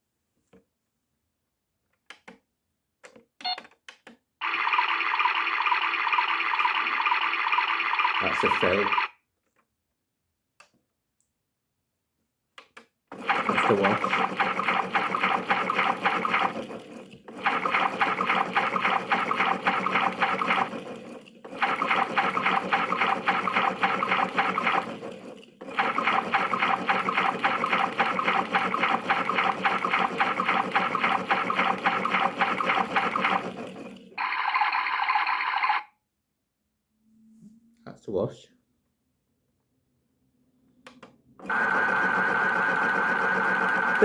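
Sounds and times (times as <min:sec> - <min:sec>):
toy washing machine water swishing: 0:04.4 - 0:09.0, 0:13.1 - 0:35.8.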